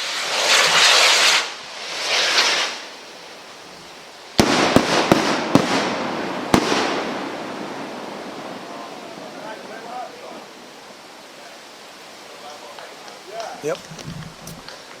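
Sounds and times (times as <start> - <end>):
firework bang: 0.0 - 2.9, 4.4 - 9.8
sharp firework reports: 0.0 - 3.0, 4.3 - 10.7
firework crackle: 0.0 - 15.0
firework rocket hissing: 0.0 - 15.0.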